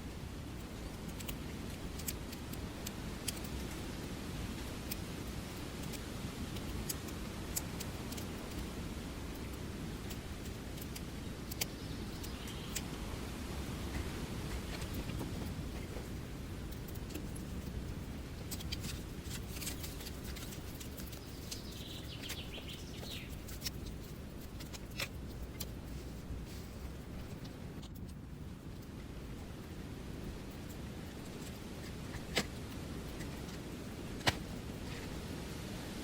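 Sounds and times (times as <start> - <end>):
steady low rumble: 0.0 - 36.0
faint bird chirps: 11.5 - 12.9, 21.0 - 23.6.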